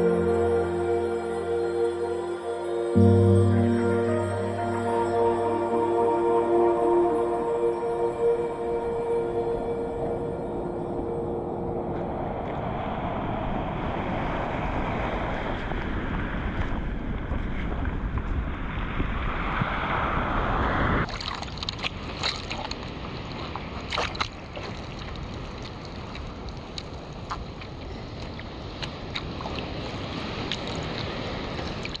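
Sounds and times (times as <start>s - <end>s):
ocean water rushing: 0.0s - 17.2s
wind on microphone: 7.6s - 23.8s
small splashes and drips: 21.1s - 32.0s.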